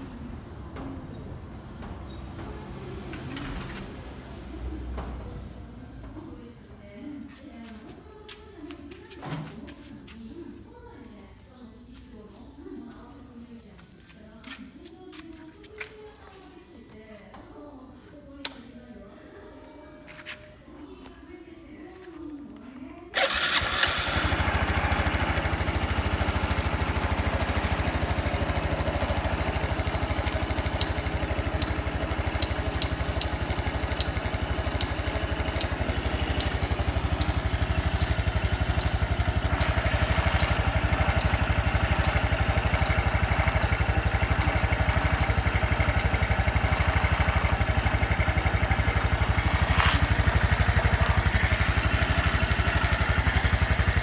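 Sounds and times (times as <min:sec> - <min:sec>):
motorcycle engine starting and idling: 0:00.1 - 0:05.6, 0:07.7 - 0:10.7, 0:23.1 - 0:54.0.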